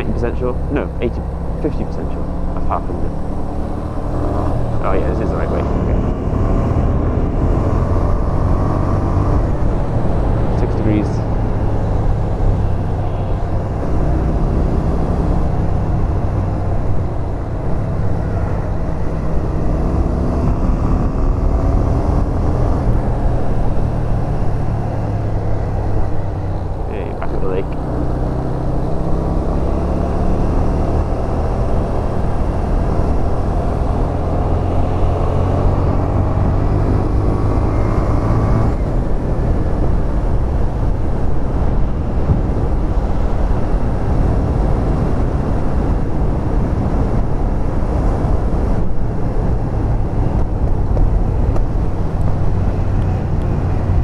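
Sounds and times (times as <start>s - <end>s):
motorcycle engine revving: 0.0s - 54.0s
rushing wind: 0.0s - 54.0s.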